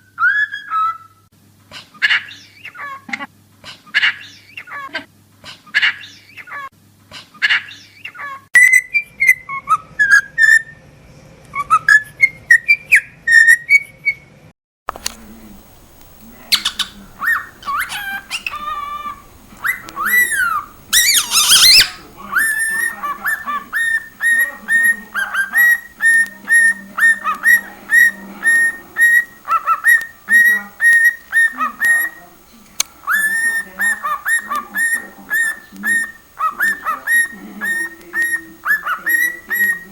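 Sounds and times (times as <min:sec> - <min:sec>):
cockatiel whistling: 0:15.0 - 0:39.9
harsh bird squawk: 0:16.2 - 0:32.2, 0:33.0 - 0:39.9.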